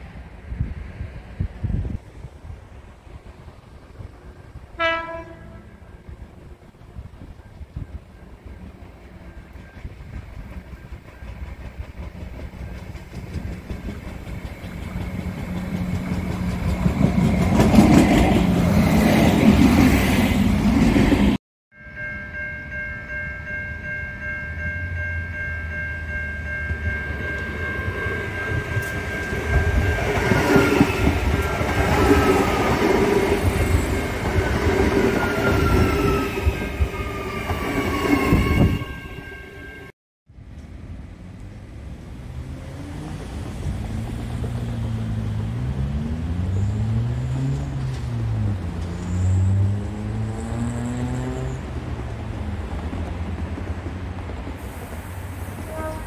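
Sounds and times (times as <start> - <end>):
train wheels rumbling on rails: 0.0 - 21.4, 24.1 - 39.3, 40.4 - 56.0
level crossing warning bells: 21.7 - 39.9.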